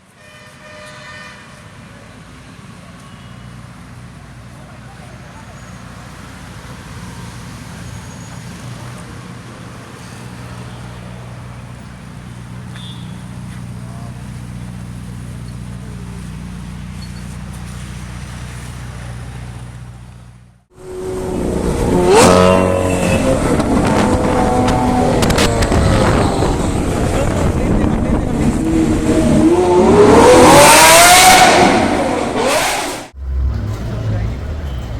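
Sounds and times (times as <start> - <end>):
car engine idling: 11.0 - 22.0
car engine revving: 20.7 - 34.9.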